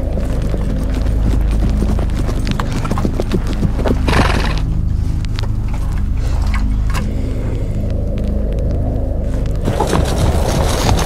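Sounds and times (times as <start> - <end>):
horse hooves clopping: 0.0 - 7.1, 7.8 - 11.0
steady low drone: 0.0 - 11.0
horse snorting blast: 4.1 - 4.6.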